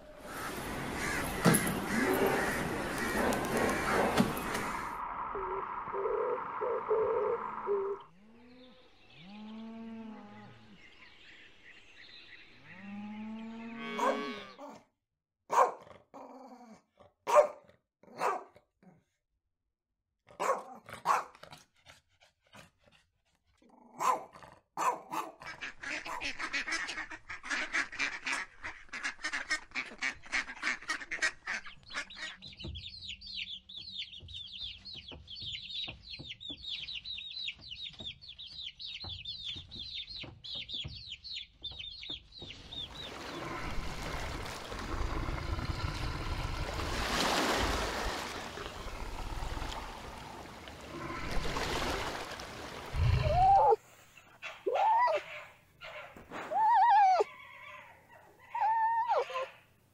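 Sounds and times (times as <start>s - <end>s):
honking animal calls: 12.6s - 14.6s
dog barking: 14.0s - 14.4s, 15.5s - 15.9s, 17.3s - 18.6s, 20.3s - 21.4s, 24.0s - 26.2s, 54.4s - 56.2s
chicks peeping: 32.5s - 43.1s.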